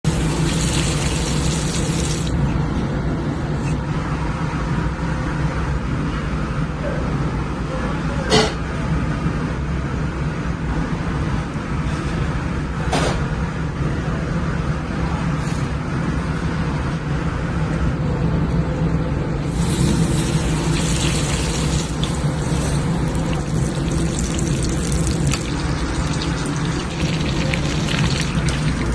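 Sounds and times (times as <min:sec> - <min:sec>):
chicken sizzling in oil: 0:00.1 - 0:02.3, 0:19.5 - 0:28.9.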